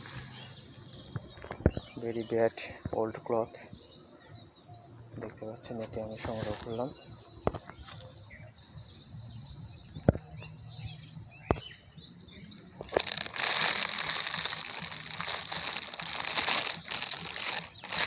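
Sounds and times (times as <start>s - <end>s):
birds chirping: 0.0s - 18.0s
plastic bag crinkling: 12.9s - 18.0s.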